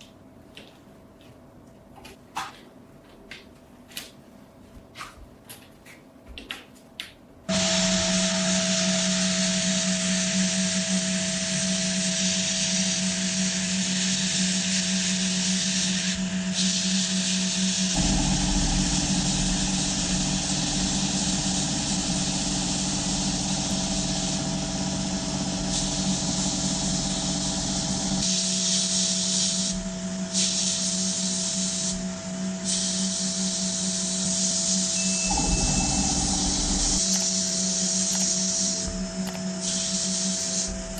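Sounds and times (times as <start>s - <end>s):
abrasive hiss on steel: 7.5s - 38.9s, 39.6s - 40.8s
deeper rumble: 35.3s - 37.0s.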